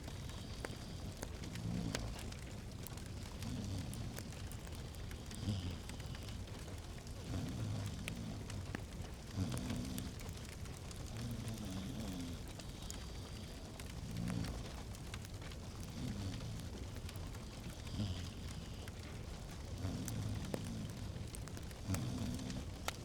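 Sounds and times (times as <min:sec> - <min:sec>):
fire crackling and popping: 0:00.0 - 0:23.0
low rumble of flames: 0:00.0 - 0:23.0.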